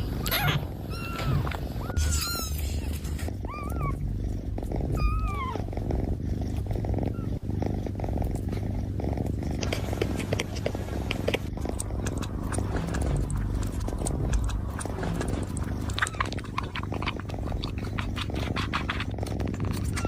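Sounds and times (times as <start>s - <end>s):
cat purring: 0.0s - 20.0s
cat lapping milk: 9.5s - 20.0s.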